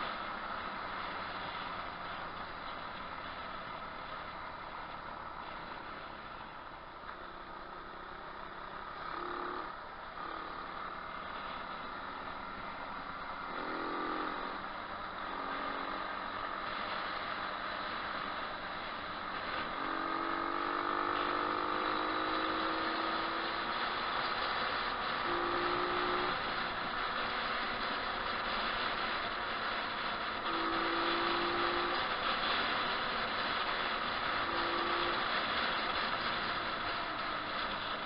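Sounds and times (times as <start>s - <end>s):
pit bike engine revving: 7.7s - 38.0s.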